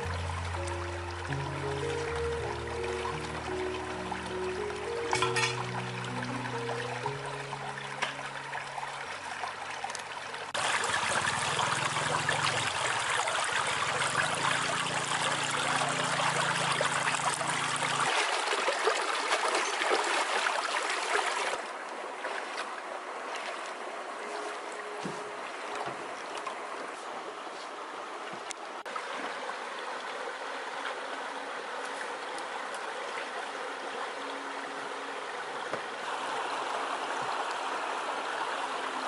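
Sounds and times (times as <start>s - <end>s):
rushing splashing water: 0.0s - 39.0s.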